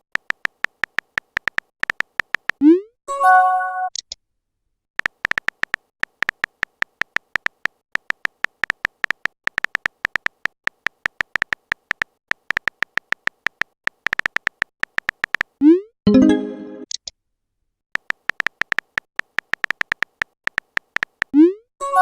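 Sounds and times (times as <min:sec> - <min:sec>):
phone keyboard typing clicks: 0:00.1 - 0:02.6, 0:05.0 - 0:15.6, 0:18.0 - 0:21.4.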